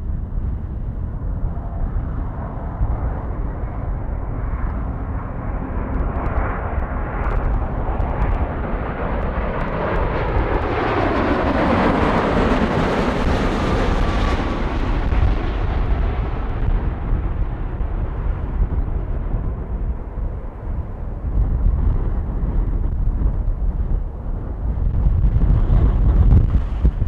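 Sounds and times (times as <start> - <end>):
jet airliner passing: 0.0 - 27.0
low rumble: 0.0 - 27.0.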